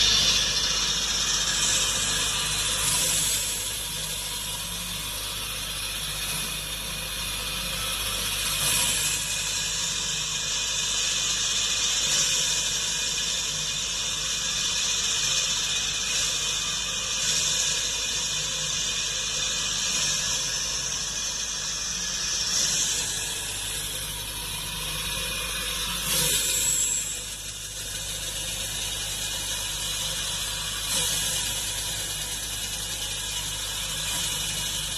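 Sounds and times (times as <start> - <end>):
rock saw grinding rock: 22.2 - 27.4.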